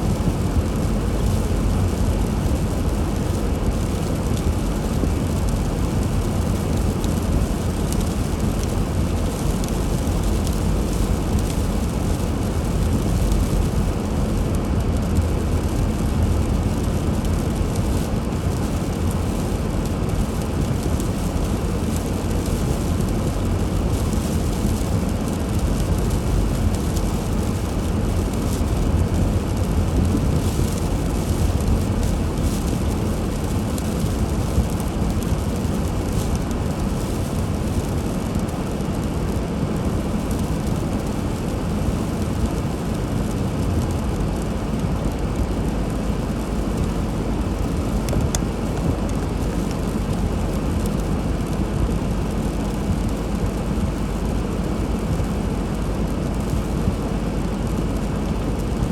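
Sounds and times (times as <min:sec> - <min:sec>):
car road and engine rumble: 0:00.0 - 0:58.9.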